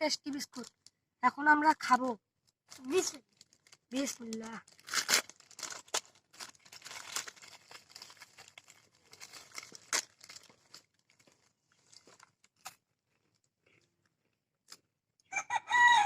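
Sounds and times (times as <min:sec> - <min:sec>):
plastic packet crinkling: 0:00.2 - 0:00.9, 0:02.7 - 0:13.5.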